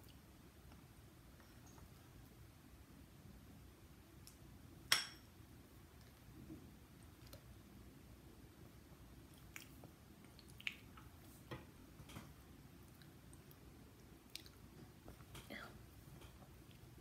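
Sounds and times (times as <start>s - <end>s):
wet chewing clicks: 9.3s - 11.0s, 14.2s - 14.7s.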